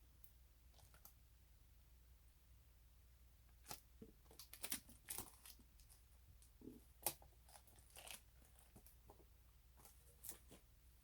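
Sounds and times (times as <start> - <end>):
plastic and card crinkling: 3.6 - 9.2.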